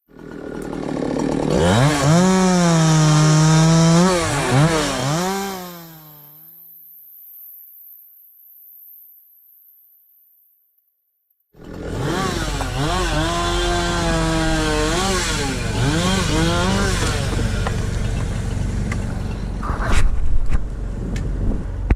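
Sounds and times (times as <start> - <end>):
chainsaw engine running hard: 0.1 - 6.5, 11.6 - 19.5.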